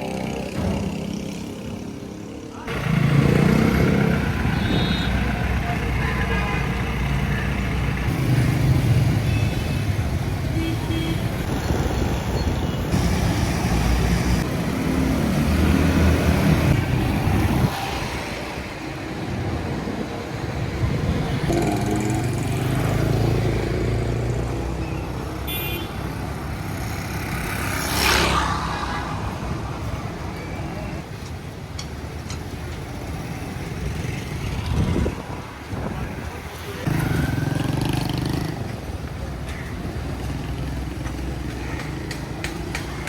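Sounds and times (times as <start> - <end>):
traffic engines running: 0.0 - 43.0
car horn toot: 4.6 - 5.2.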